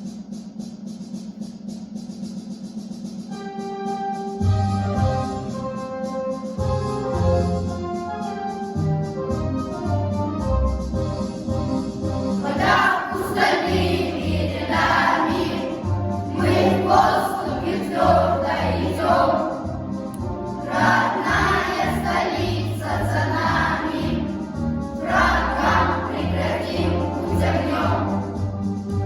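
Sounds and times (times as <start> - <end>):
instrumental backing track: 3.2 - 29.0
young voices singing together: 12.4 - 28.5.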